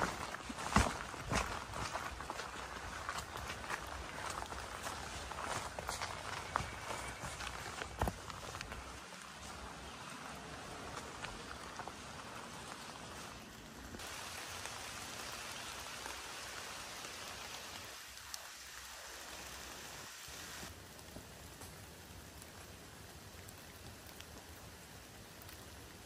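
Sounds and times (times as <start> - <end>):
steady rain hiss: 0.0 - 26.0
faint raindrop ticks: 2.6 - 14.0, 16.9 - 19.7, 20.6 - 26.0.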